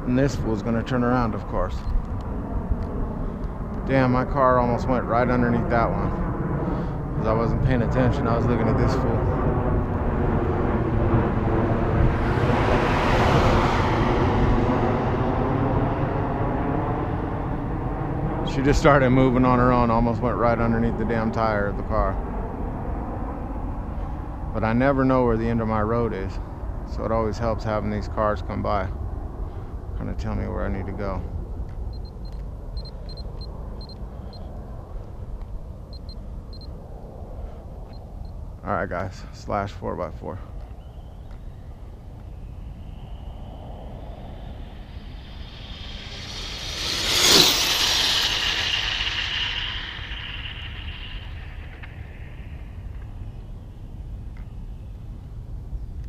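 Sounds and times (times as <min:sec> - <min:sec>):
steady low rumble: 0:00.0 - 0:56.0
car passing: 0:09.2 - 0:17.8, 0:42.0 - 0:53.7
short high-pitched beeps: 0:32.0 - 0:34.5, 0:35.9 - 0:36.7.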